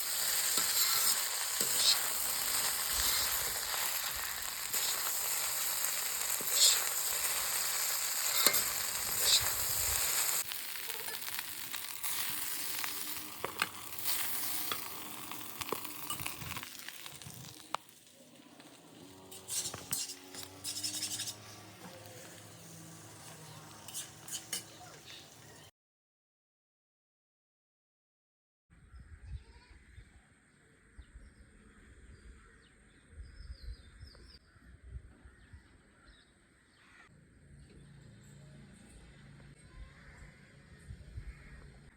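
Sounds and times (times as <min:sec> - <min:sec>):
food sizzling in a pan: 0:00.0 - 0:25.7.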